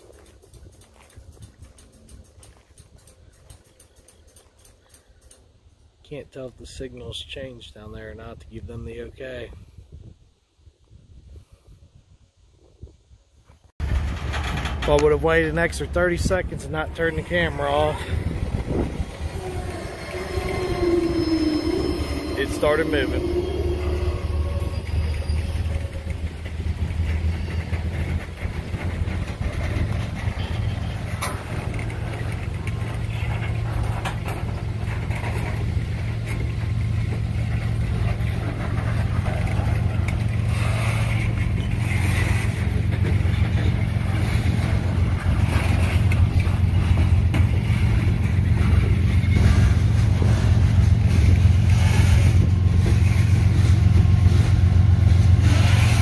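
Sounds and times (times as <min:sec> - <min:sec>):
metal clanks: 0:13.8 - 0:19.2
freight train wheels clacking on rails: 0:13.8 - 0:56.0
low steady drone: 0:17.7 - 0:26.5.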